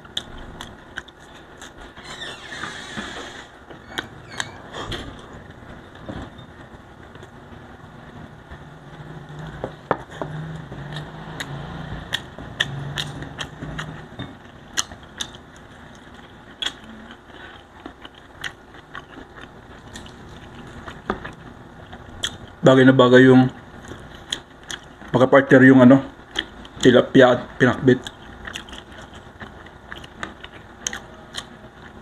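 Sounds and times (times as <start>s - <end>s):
chewing and lip-smacking: 0.0s - 1.8s, 10.6s - 22.6s, 23.8s - 25.2s, 26.3s - 26.9s, 27.9s - 32.0s
low closed-mouth hum: 0.0s - 32.0s.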